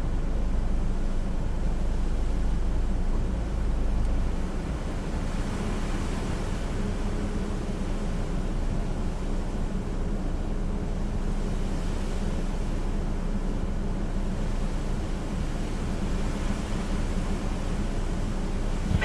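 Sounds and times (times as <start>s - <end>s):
low steady hum: 0.0s - 19.0s
hurricane wind rushing: 18.6s - 19.0s.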